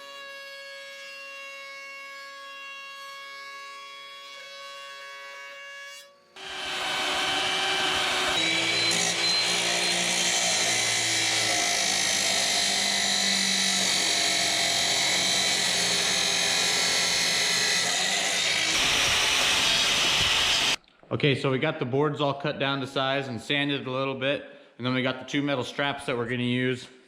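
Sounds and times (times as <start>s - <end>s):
power tool cutting wood: 0.0s - 20.8s.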